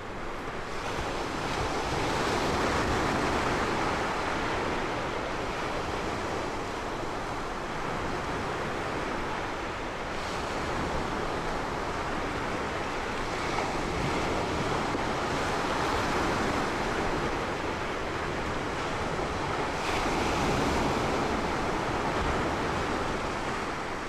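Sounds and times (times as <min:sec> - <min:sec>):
ocean waves rushing: 0:09.0 - 0:24.0.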